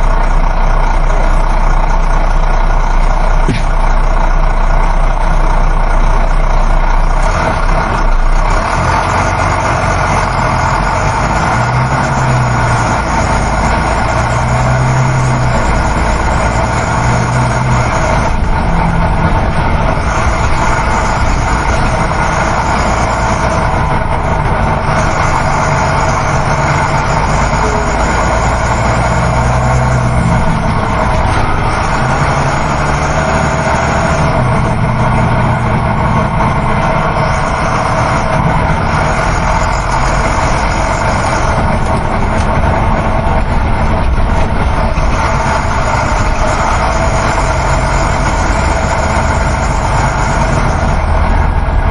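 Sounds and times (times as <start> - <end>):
bus diesel engine and road noise: 0.0 - 51.9.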